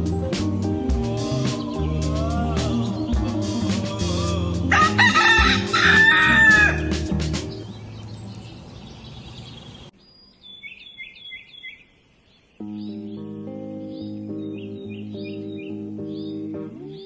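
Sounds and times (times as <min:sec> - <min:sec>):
background music: 0:00.0 - 0:07.6
small birds chirping: 0:00.0 - 0:17.0
rooster crowing: 0:04.3 - 0:06.9.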